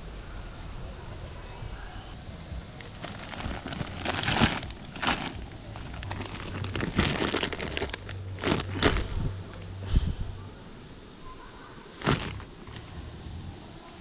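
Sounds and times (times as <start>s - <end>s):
camping gear rustling and crinkling: 2.1s - 10.1s, 11.9s - 13.5s.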